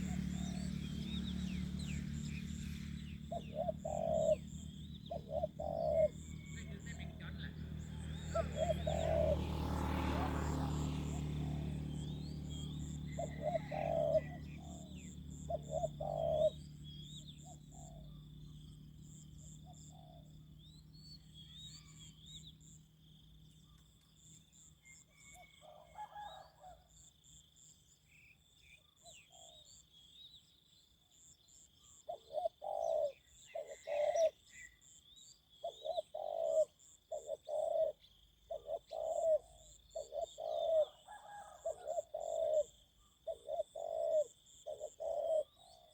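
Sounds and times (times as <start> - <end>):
doves cooing: 0.0 - 20.4, 32.1 - 34.4, 35.6 - 45.9.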